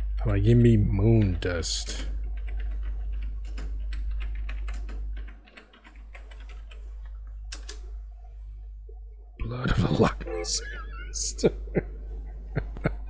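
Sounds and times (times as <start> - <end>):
steady low hum: 0.0 - 13.0
keyboard keystrokes clicking: 2.3 - 7.8.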